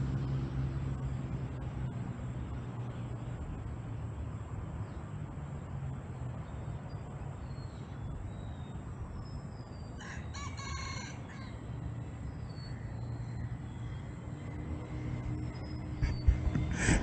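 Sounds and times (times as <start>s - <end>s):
rooster crowing: 10.0s - 11.7s
steady low rumble: 13.8s - 17.0s.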